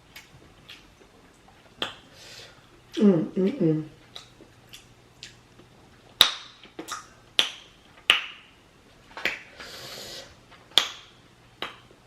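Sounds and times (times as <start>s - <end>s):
wet smacking eating sounds: 0.0s - 3.0s, 4.0s - 8.5s, 9.1s - 9.6s, 10.5s - 12.0s.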